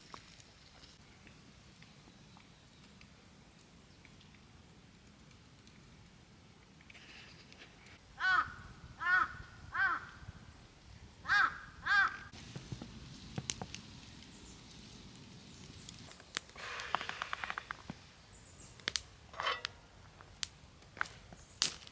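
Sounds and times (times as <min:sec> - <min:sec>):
crow cawing: 0:08.2 - 0:10.2, 0:11.2 - 0:12.3.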